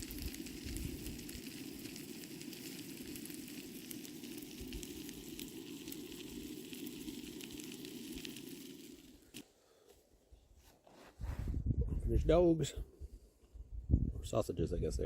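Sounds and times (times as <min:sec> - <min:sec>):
sausages sizzling: 0:00.0 - 0:09.4.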